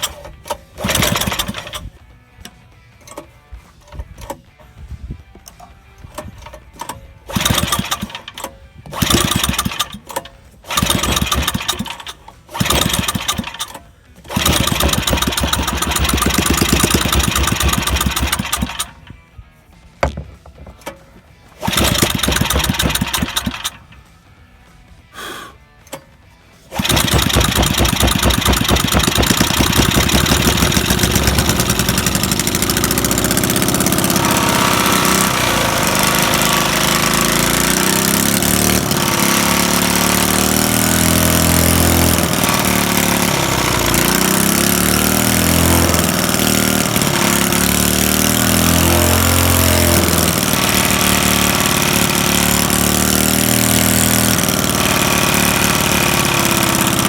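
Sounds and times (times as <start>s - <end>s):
small engine starting and running: 0.0s - 4.5s, 5.5s - 19.3s, 20.0s - 24.5s, 25.9s - 57.0s.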